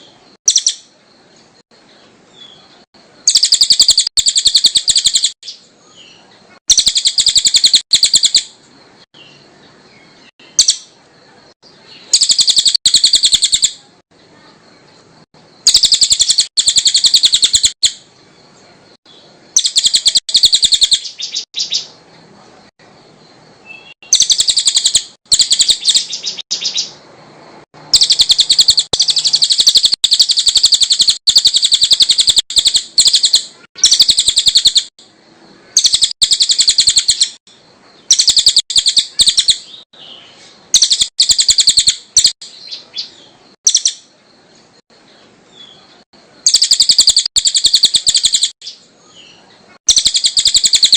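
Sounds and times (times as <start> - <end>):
bird chattering trills: 3.2 - 5.6, 6.7 - 8.5, 12.0 - 13.8, 15.6 - 18.0, 19.6 - 21.9, 23.8 - 27.0, 27.9 - 34.9, 35.6 - 37.4, 38.0 - 40.1, 40.7 - 44.1, 46.4 - 50.9.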